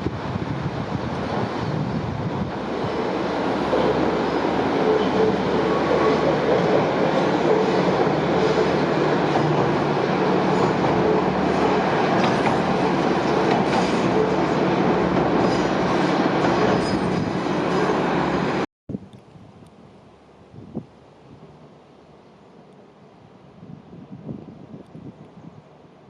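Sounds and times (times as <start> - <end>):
train wheels on rails: 0.0 - 18.6
railcar engine hum: 0.0 - 26.0.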